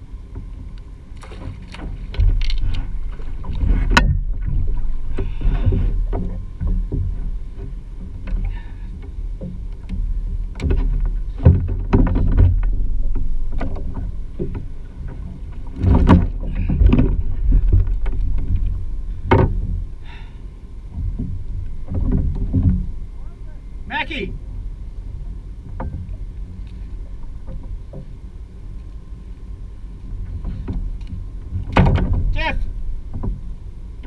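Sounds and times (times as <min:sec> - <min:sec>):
wind and water rumble: 0:00.0 - 0:34.0
sharp knocks on kayak: 0:09.4 - 0:14.7, 0:15.7 - 0:19.8, 0:31.5 - 0:32.4.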